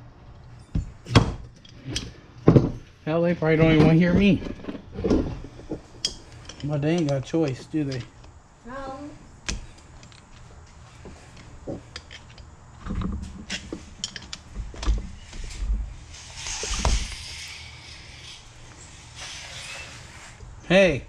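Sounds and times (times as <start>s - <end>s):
hand tools clicking on metal: 6.0s - 8.3s.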